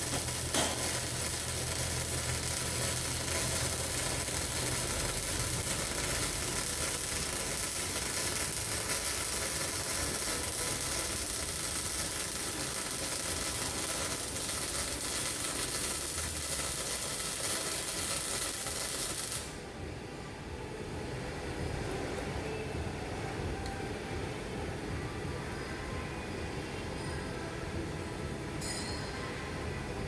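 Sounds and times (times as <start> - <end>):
welding arc crackling hiss: 0.0 - 19.6.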